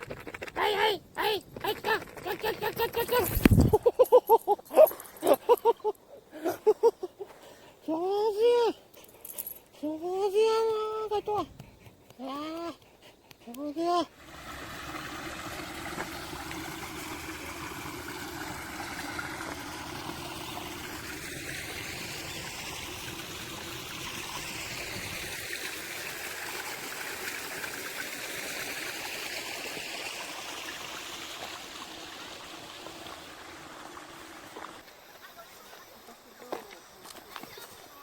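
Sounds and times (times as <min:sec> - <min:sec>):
running water rushing: 0:14.0 - 0:35.2.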